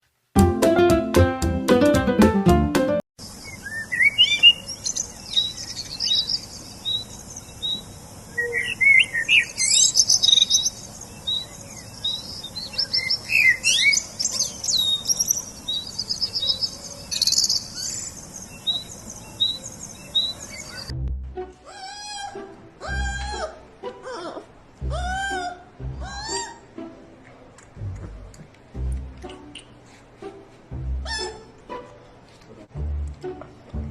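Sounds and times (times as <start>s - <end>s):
birds chirping and singing: 3.2s - 20.9s.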